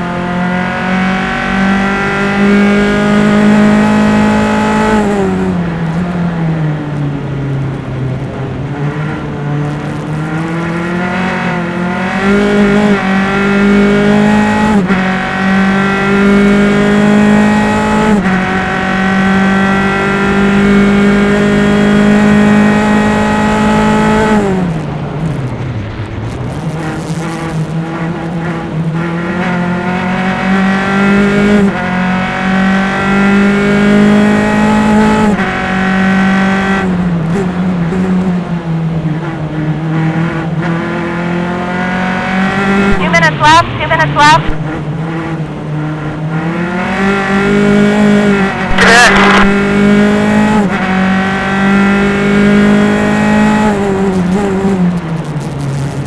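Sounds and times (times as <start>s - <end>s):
race car engine at speed: 0.0s - 56.0s.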